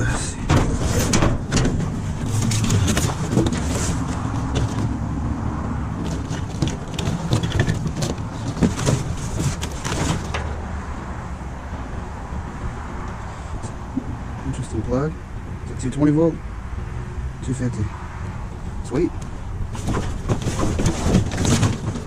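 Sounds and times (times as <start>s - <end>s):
junk clattering in a dumpster: 0.0s - 5.2s, 5.9s - 10.7s, 19.6s - 22.0s.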